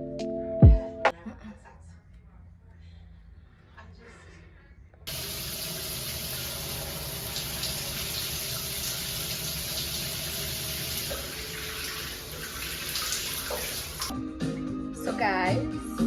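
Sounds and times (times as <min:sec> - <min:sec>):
shower water spraying: 0:05.1 - 0:14.1.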